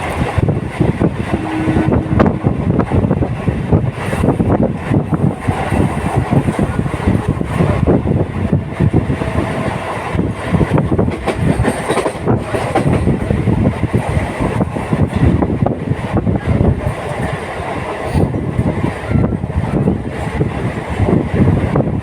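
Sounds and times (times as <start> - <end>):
train rumbling along track: 0.0 - 22.0
wheels rattling and knocking: 2.8 - 17.4.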